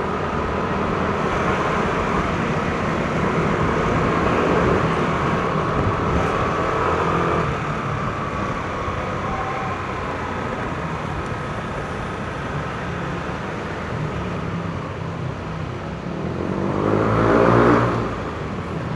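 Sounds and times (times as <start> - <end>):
scooter engine riding: 0.0 - 16.0
road and wind noise: 0.0 - 18.9.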